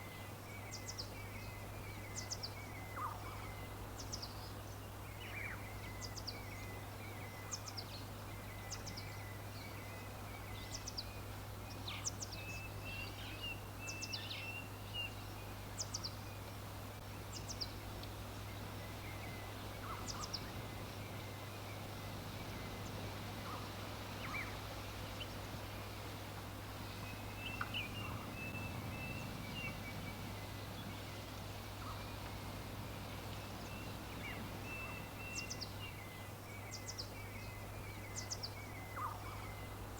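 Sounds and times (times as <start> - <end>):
birds chirping: 17.1 - 39.8.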